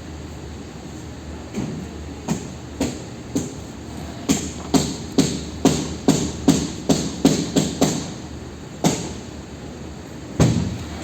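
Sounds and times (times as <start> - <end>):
sharp knocks: 4.3 - 8.2.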